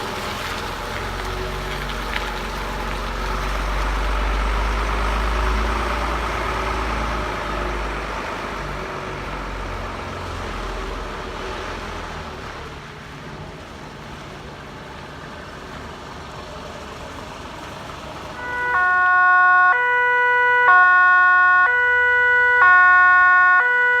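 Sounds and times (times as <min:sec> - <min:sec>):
fire truck engine rumble: 0:00.0 - 0:24.0
two-tone siren: 0:18.4 - 0:24.0.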